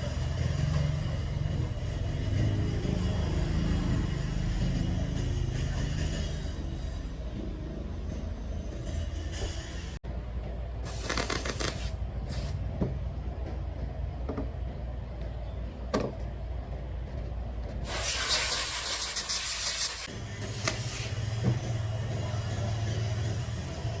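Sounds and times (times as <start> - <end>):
steady low hum: 0.0 - 17.9
air jet hissing bursts: 10.8 - 12.6, 17.8 - 21.3.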